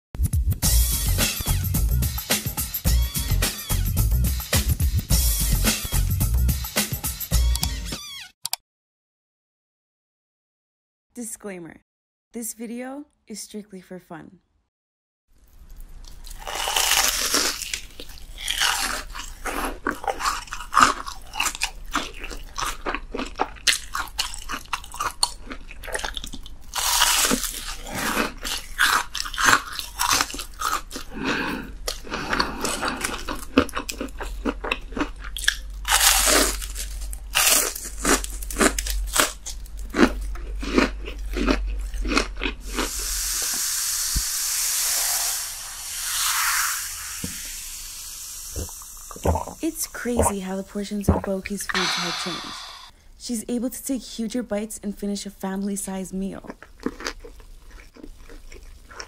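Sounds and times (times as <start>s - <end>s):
crunching fried food: 15.4s - 43.6s, 56.4s - 59.0s
wet chewing: 15.6s - 43.6s, 48.5s - 50.4s, 56.4s - 59.0s
steady hiss: 42.9s - 49.6s.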